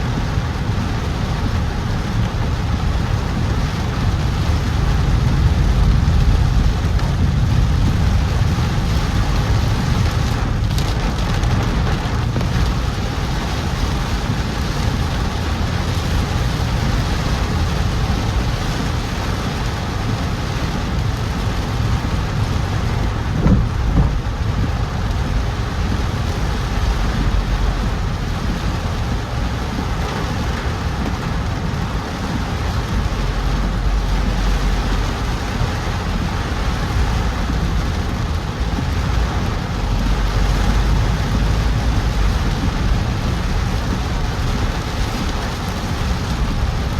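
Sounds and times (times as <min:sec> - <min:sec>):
car driving low rumble: 0:00.0 - 0:46.9.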